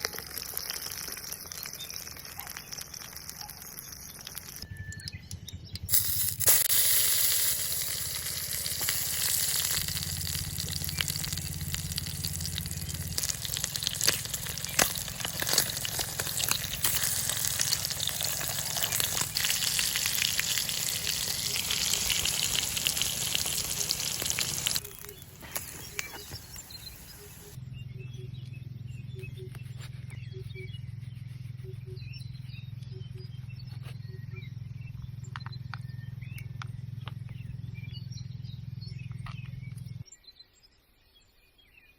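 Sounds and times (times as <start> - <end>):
low steady hum: 4.6 - 40.0
food sizzling in a pan: 6.0 - 27.6.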